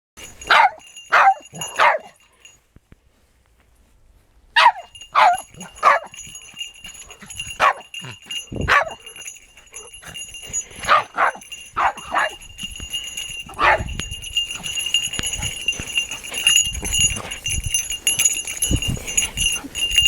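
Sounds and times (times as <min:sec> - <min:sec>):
small bell jingling: 0:00.2 - 0:02.6, 0:04.6 - 0:20.0
dogs barking: 0:00.4 - 0:02.5, 0:04.6 - 0:18.4.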